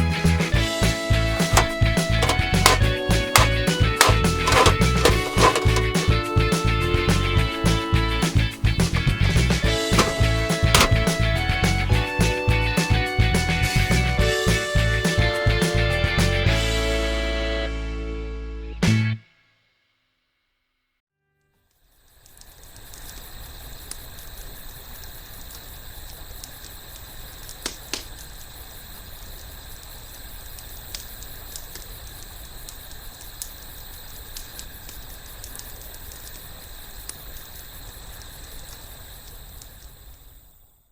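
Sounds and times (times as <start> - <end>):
wood fire crackling and popping: 30.4 - 39.9.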